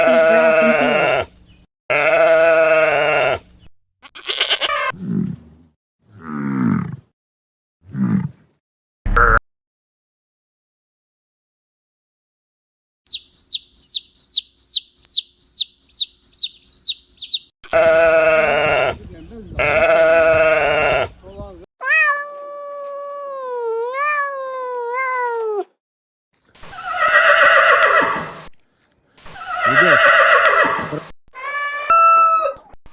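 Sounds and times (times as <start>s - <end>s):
sheep bleating: 0.0s - 1.3s, 1.9s - 4.9s, 17.7s - 21.2s.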